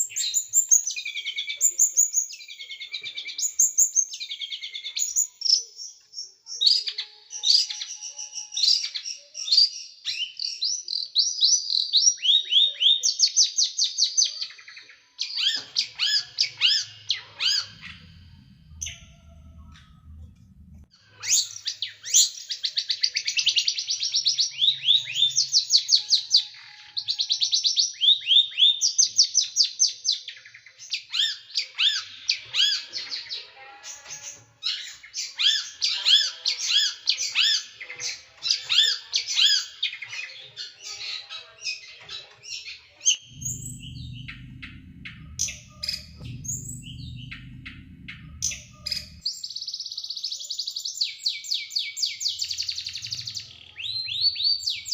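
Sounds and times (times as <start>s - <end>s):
low rumble: 16.6s - 20.9s, 43.2s - 49.3s.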